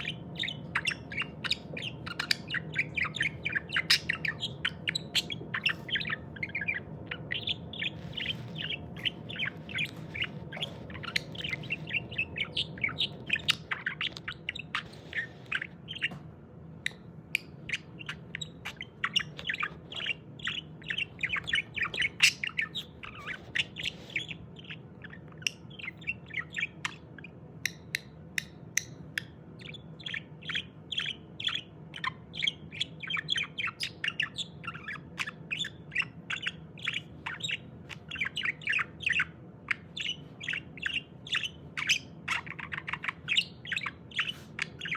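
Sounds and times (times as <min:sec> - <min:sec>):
budgerigar warbling: 0:00.0 - 0:16.2
faint low hum: 0:00.0 - 0:44.9.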